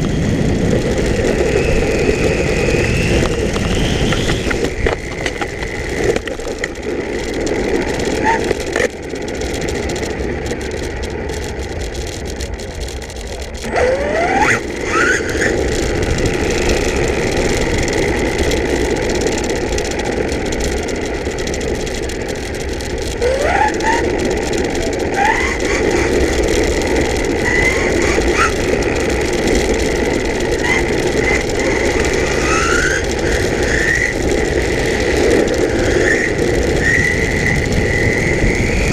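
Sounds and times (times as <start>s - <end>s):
rush of running noise: 0.0s - 38.9s
electric motor whining: 23.2s - 38.9s.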